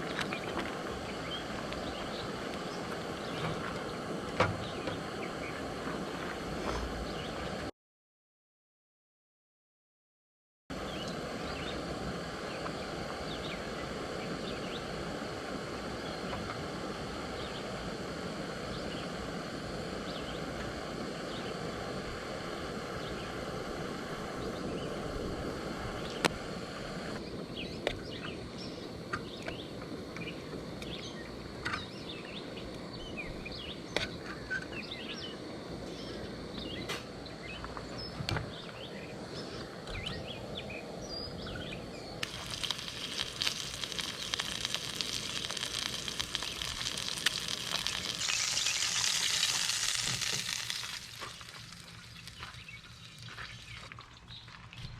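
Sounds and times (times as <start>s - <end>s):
birds chirping: 0.0s - 5.8s, 6.9s - 7.7s, 27.2s - 54.9s
outdoor background noise: 0.0s - 7.7s, 10.7s - 54.9s.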